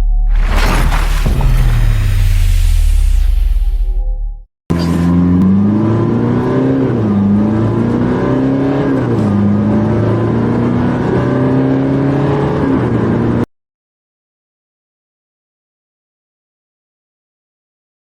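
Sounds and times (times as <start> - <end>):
car engine accelerating hard: 4.7 - 13.4.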